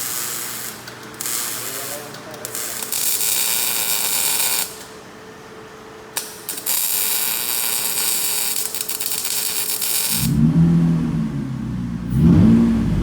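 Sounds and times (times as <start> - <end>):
car engine running: 10.2 - 13.0.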